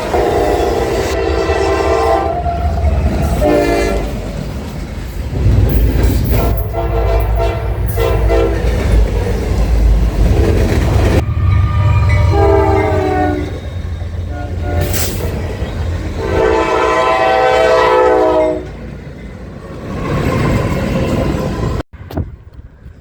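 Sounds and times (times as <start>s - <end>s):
locomotive air horn blasts: 0.0s - 4.2s, 6.4s - 9.0s, 12.0s - 15.4s, 16.2s - 18.8s
passing train rumble: 0.0s - 23.0s.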